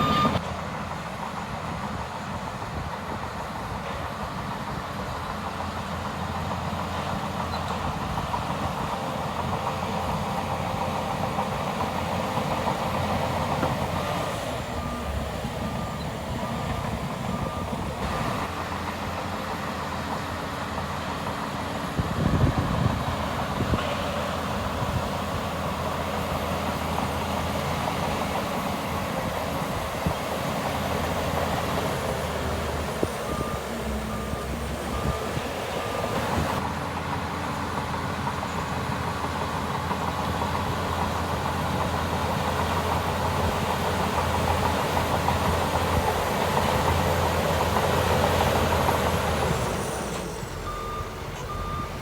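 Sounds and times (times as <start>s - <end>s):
reversing alarm beeps: 0.0s - 0.4s, 14.6s - 18.4s, 22.2s - 22.9s, 32.5s - 36.6s, 49.6s - 52.0s
heavy diesel machinery running: 0.0s - 52.0s.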